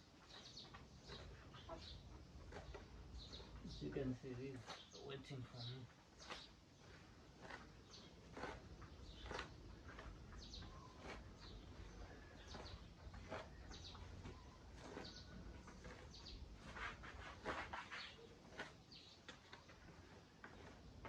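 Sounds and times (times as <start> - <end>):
chickens chirping softly: 0.1 - 20.3.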